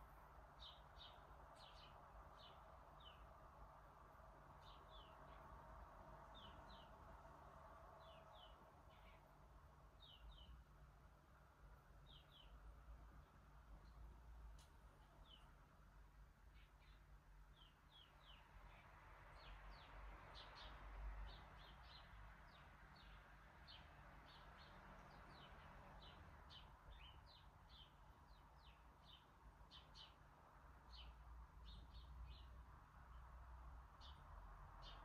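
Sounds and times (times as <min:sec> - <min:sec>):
bird chirping: 0:10.0 - 0:10.6, 0:16.5 - 0:30.2.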